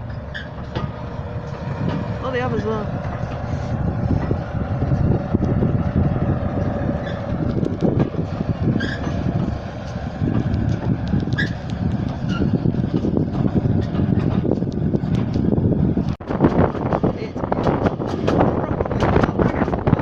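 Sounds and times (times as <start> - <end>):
train wheels rumbling on track: 0.0 - 20.0
wind buffeting microphone: 0.0 - 20.0
short high squeaks: 0.2 - 0.7, 8.7 - 9.2, 11.3 - 11.6.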